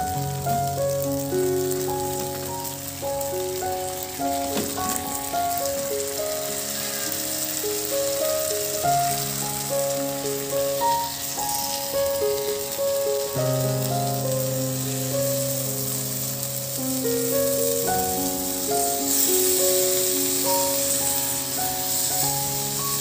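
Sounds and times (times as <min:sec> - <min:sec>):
melodic background music: 0:00.0 - 0:23.0
sauce sizzling in a pan: 0:00.0 - 0:23.0.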